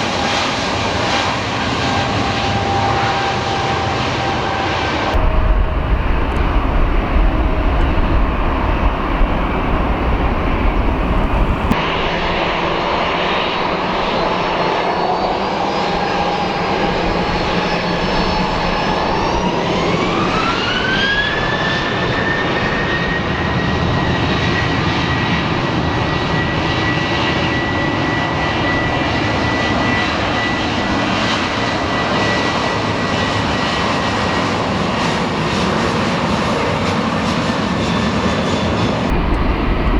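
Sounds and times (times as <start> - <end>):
deep jet rumble: 1.9 - 22.0, 39.1 - 39.9
jet engines spooling up: 1.9 - 22.2, 39.1 - 39.9.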